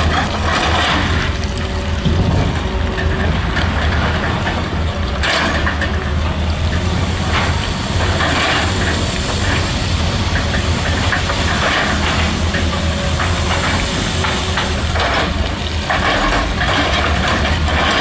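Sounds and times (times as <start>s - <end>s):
excavator diesel engine running: 0.0s - 18.0s
irregular clatter: 0.0s - 18.0s
hiss: 6.6s - 18.0s.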